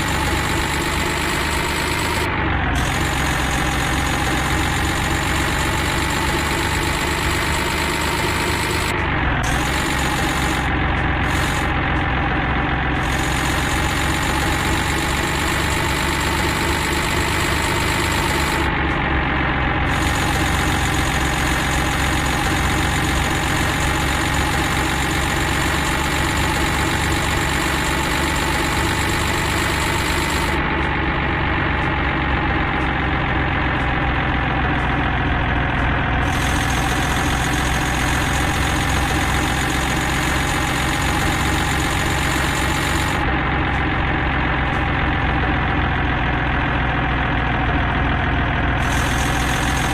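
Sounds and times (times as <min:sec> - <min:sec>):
engine idling: 0:00.0 - 0:49.9.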